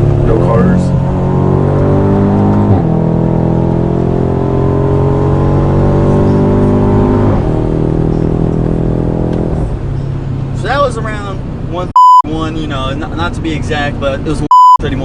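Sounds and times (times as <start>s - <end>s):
car engine accelerating hard: 0.0s - 9.9s.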